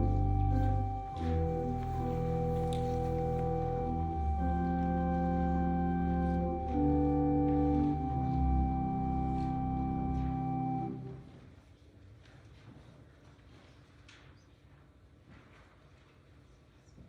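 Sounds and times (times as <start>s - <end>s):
organ playing held chords: 0.0s - 11.3s.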